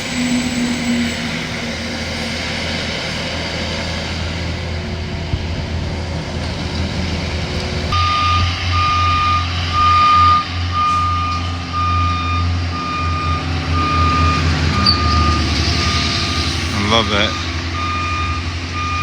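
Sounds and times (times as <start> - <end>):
diesel engine running: 0.0 - 19.0
backup alarm beeping: 8.0 - 19.0.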